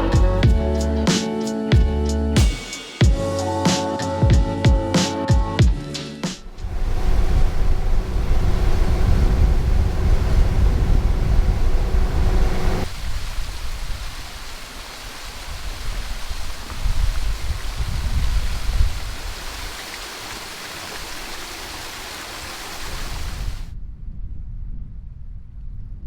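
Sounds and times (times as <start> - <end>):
deep rumble: 0.0 - 1.1, 6.4 - 12.9
rushing water and wind: 6.4 - 23.7
hissy flowing water: 6.6 - 23.7.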